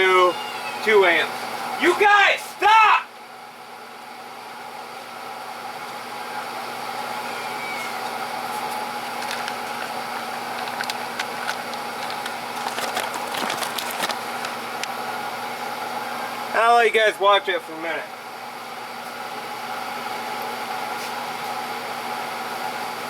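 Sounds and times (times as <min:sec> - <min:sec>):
battery charger humming: 0:07.0 - 0:15.0
crackling clicks: 0:08.6 - 0:14.9.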